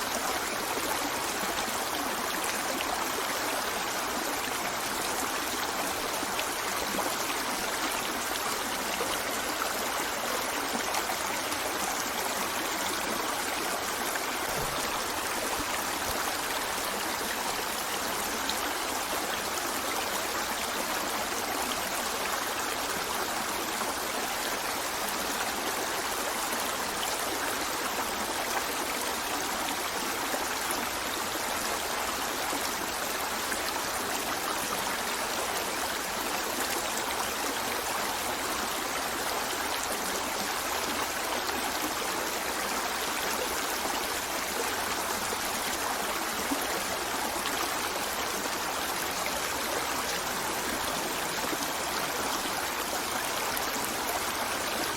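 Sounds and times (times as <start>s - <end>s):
river flowing: 0.0s - 54.9s.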